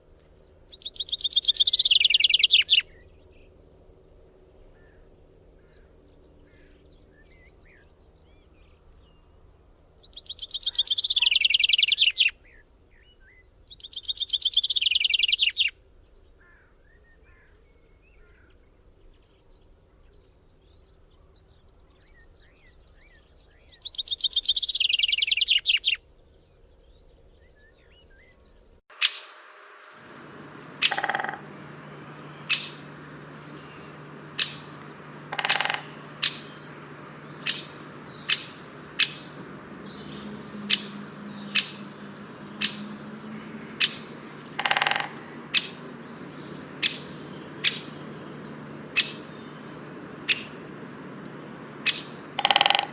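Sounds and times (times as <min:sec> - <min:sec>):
songbird trilling: 0:00.7 - 0:03.5, 0:10.0 - 0:15.7, 0:23.7 - 0:26.0, 0:28.9 - 0:52.9
faint bird chirps: 0:10.0 - 0:52.9
steady hum: 0:29.2 - 0:52.9.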